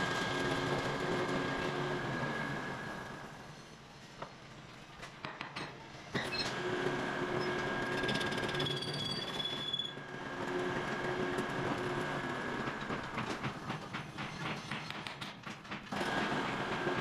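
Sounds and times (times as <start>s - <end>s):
machinery high-pitched metallic whine: 7.3s - 10.1s.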